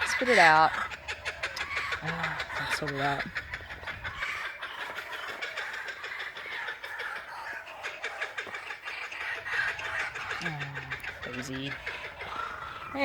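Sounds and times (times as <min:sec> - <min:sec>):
kookaburras laughing: 0:00.0 - 0:13.0.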